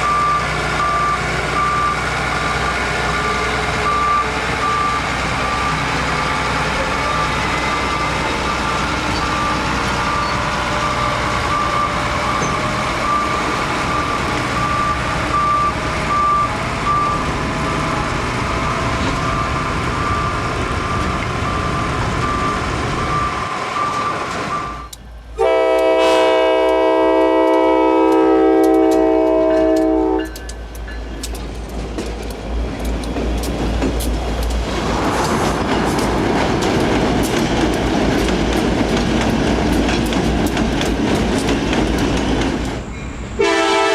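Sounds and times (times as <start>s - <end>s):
wheels clicking on rails: 0.0s - 43.4s
rail cars rumbling past: 0.0s - 43.9s
high electronic beep: 11.5s - 24.9s
locomotive air horn: 24.6s - 30.4s, 43.4s - 43.9s
steady rumble: 31.4s - 39.8s.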